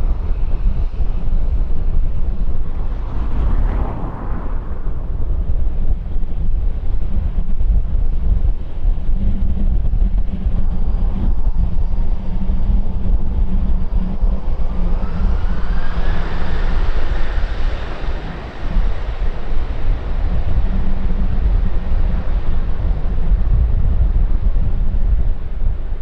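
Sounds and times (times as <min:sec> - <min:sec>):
wind buffeting microphone: 0:00.0 - 0:26.0
jet engines whining: 0:10.1 - 0:23.2.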